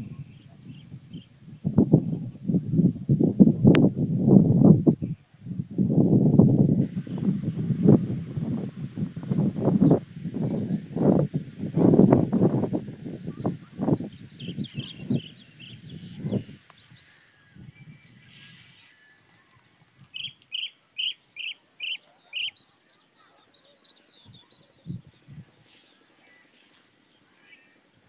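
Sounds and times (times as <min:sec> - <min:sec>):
bird chirps: 0:13.3 - 0:19.2, 0:20.0 - 0:28.0.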